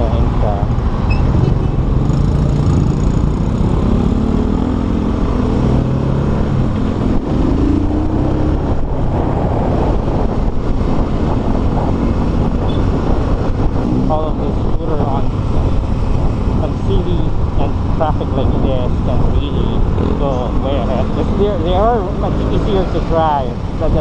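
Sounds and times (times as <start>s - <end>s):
wind and road noise: 0.0s - 24.0s
motorcycle engine accelerating: 1.1s - 24.0s.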